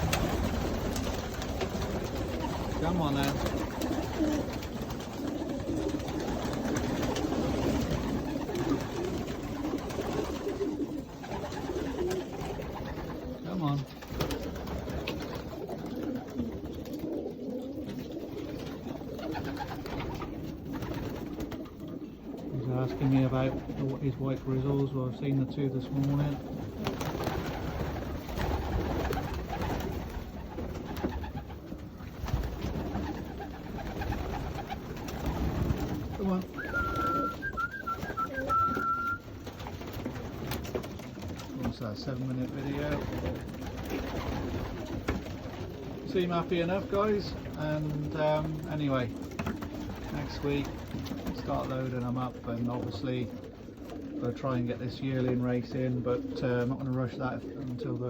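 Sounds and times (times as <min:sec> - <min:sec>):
pigeons cooing: 0:00.0 - 0:58.0
birds moving clicks and knocks: 0:47.3 - 0:51.8.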